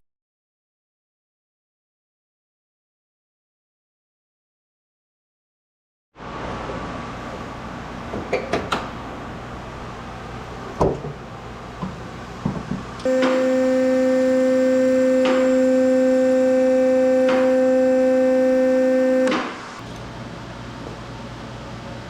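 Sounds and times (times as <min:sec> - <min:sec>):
loud steady machine hum: 0:13.0 - 0:19.8.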